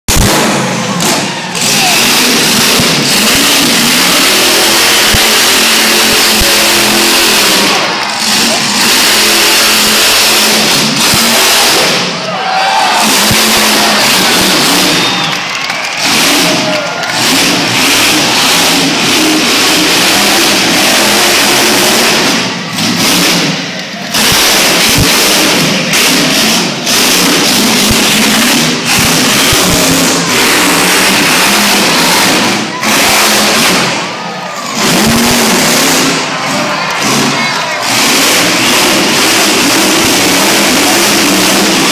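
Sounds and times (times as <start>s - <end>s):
truck engine revving: 0.0s - 41.9s.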